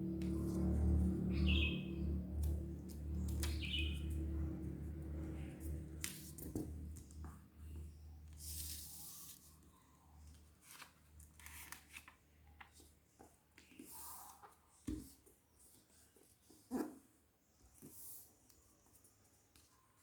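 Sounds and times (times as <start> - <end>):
faint low hum: 0.0 - 11.3
paper rustling and creasing: 10.3 - 12.9.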